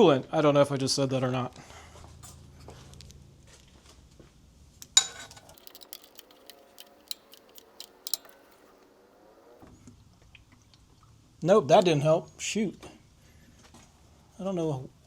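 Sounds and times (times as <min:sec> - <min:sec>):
ratchet clicking: 0:05.5 - 0:08.7.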